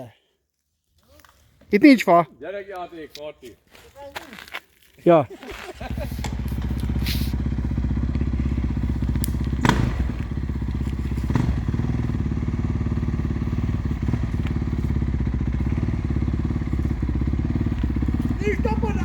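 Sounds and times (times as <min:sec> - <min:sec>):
motorcycle engine running: 0:05.8 - 0:19.0
sharp knocks: 0:09.5 - 0:10.3.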